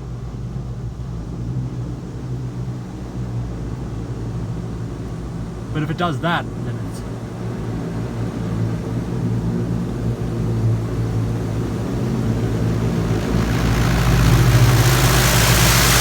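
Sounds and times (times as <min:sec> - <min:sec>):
machine low hum: 0:11.4 - 0:16.0
high-pressure water jets spraying: 0:11.8 - 0:16.0.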